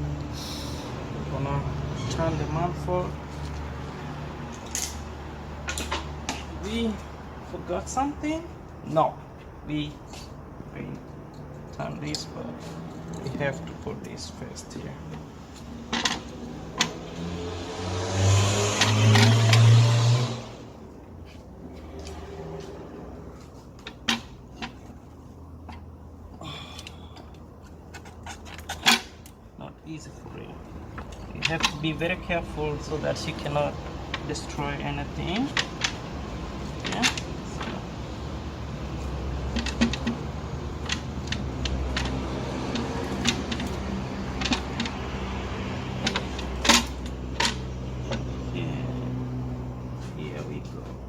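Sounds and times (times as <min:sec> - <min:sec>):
clicks and knocks of engine parts: 0:04.4 - 0:07.2, 0:09.4 - 0:17.3, 0:18.6 - 0:20.4, 0:21.0 - 0:29.6, 0:30.2 - 0:51.0
hand tools clicking and knocking: 0:26.6 - 0:29.4, 0:30.8 - 0:32.3, 0:33.1 - 0:37.9, 0:38.9 - 0:45.3, 0:45.9 - 0:48.3.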